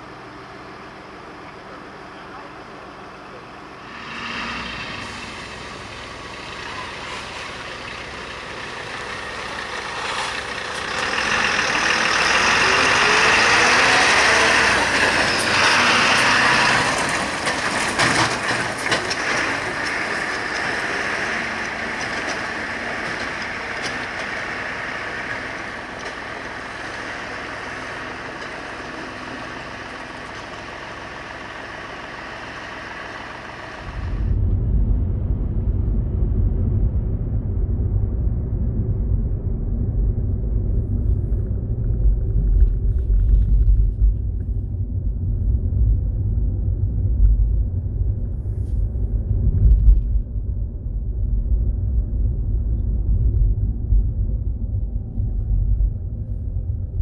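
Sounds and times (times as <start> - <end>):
fire engine idling: 0.0 - 34.4
knocks and clatters: 5.0 - 31.7.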